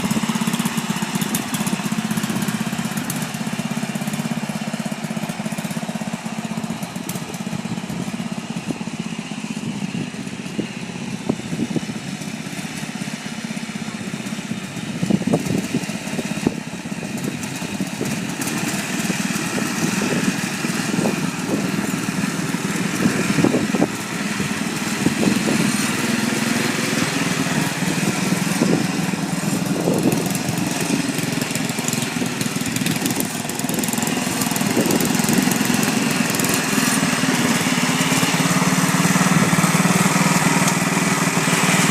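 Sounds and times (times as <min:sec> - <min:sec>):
lawn tractor engine running: 0:00.0 - 0:41.9.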